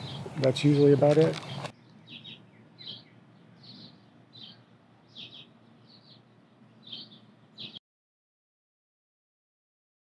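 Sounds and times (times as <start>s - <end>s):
bird chirping: 0.0s - 7.8s
faint outdoor background noise: 0.0s - 7.8s.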